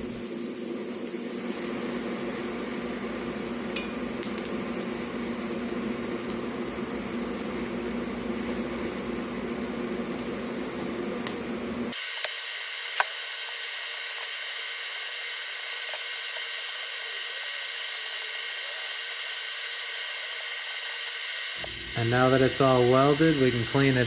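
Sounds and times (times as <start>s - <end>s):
welding arc hissing: 0.0s - 24.0s.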